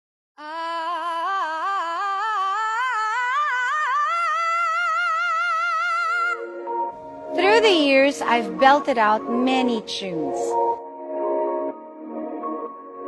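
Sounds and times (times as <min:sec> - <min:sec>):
woman singing wordless vocal run: 0:00.4 - 0:06.5, 0:07.4 - 0:10.7.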